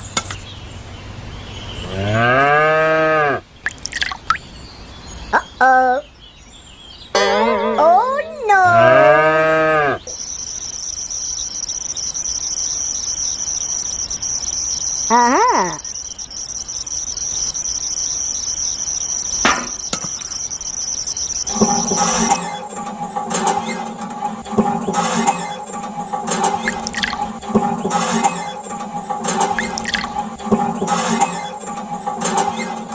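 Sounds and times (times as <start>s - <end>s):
cow mooing: 1.8s - 3.4s, 8.6s - 10.1s
crickets chirring: 3.5s - 4.6s, 10.0s - 32.9s.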